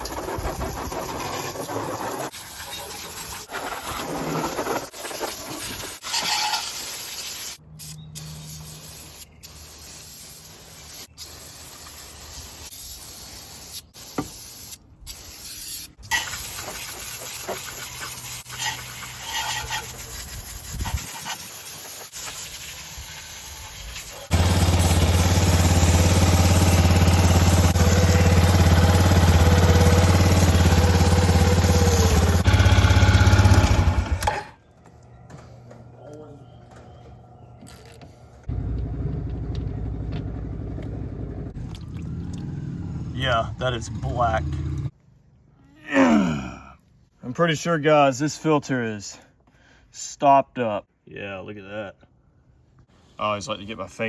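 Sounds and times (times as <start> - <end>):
spraying hiss: 4.8 - 26.5
rubbing and scraping: 16.2 - 22.4
engine idling: 24.3 - 34.3.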